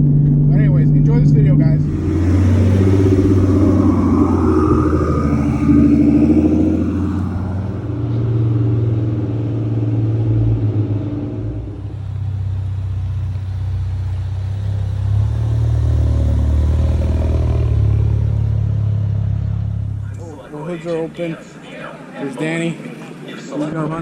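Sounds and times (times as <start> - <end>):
car engine running: 1.8 - 8.2.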